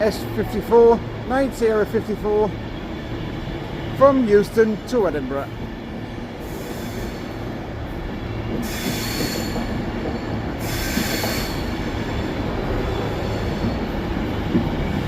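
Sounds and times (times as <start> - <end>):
electric train humming and rumbling: 0.0 - 15.0
high-pitched hissing squeals: 6.4 - 7.5, 8.6 - 13.9.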